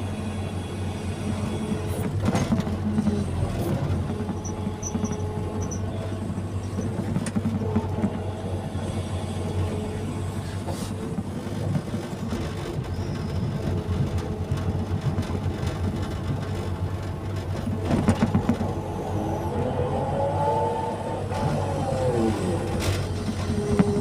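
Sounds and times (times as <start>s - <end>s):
excavator diesel engine running: 0.0s - 24.0s
knocking and rattling: 11.7s - 18.7s.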